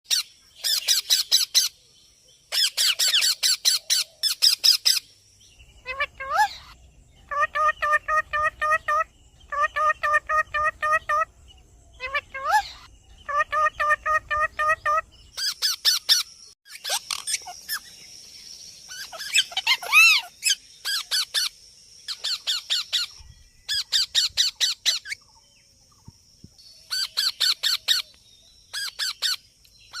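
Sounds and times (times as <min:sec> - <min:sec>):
parrot squawking: 0:05.8 - 0:11.3, 0:12.0 - 0:17.8, 0:18.9 - 0:21.5.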